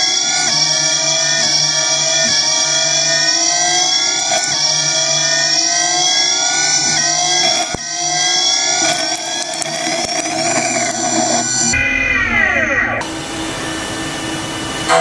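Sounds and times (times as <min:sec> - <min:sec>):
machine tool motor whining: 0:00.0 - 0:11.8.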